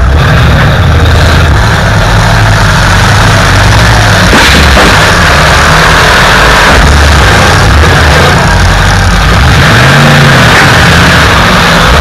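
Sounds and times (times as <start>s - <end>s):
car engine running hard: 0.0s - 12.0s
heavy bang of car impact: 4.2s - 5.5s.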